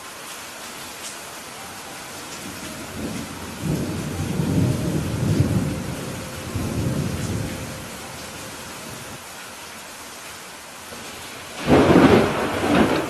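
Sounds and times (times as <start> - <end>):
heavy rain hissing: 0.0 - 13.0
thunder rumbling: 2.2 - 9.2, 11.0 - 13.0.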